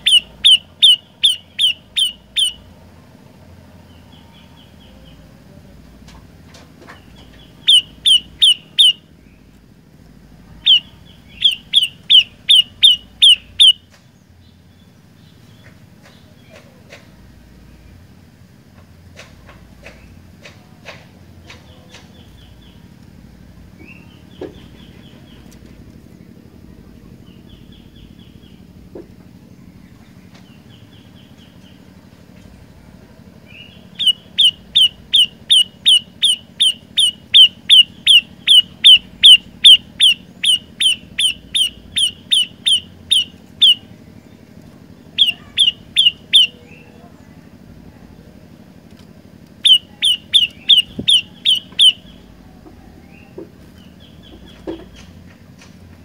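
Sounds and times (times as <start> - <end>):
bird singing sharp call notes: 0.0 - 2.7, 7.2 - 9.4, 10.6 - 13.9, 33.5 - 44.2, 45.0 - 47.0, 49.6 - 52.4.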